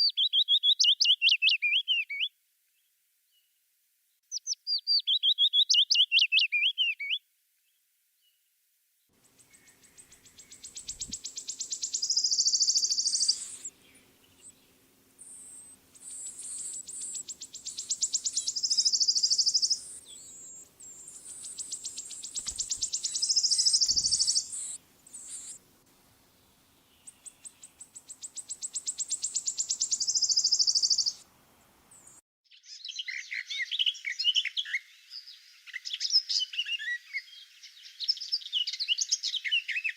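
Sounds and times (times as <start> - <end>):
songbird trilling: 0.0 - 2.3, 4.4 - 7.2, 9.3 - 25.6, 26.9 - 31.2
bird's jumbled song: 0.0 - 3.5, 4.3 - 8.4, 9.2 - 25.6, 26.3 - 39.9.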